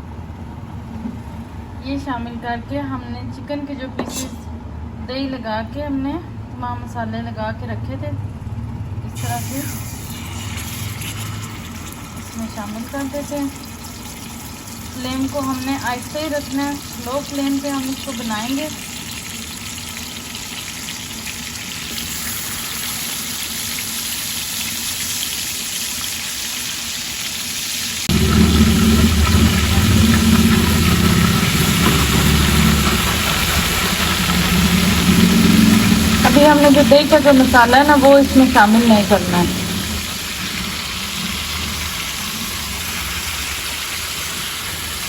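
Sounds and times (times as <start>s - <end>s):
chicken sizzling in oil: 9.2s - 45.0s
loud low hum: 28.1s - 43.0s.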